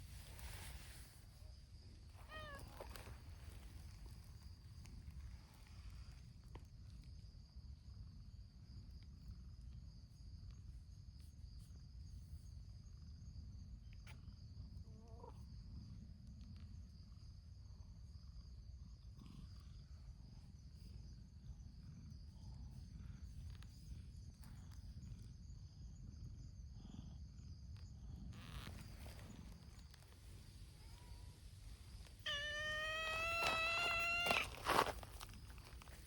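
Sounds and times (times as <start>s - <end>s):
faint cat meow: 2.2s - 3.1s, 14.8s - 15.5s, 30.7s - 31.4s, 32.0s - 34.7s.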